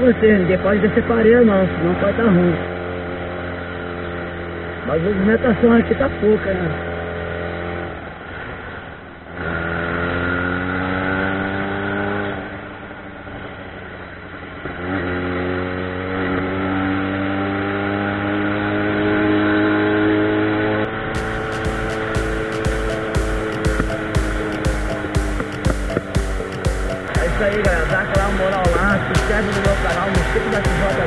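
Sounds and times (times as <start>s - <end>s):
motorcycle engine accelerating: 0.0s - 31.0s
background music: 21.2s - 31.0s.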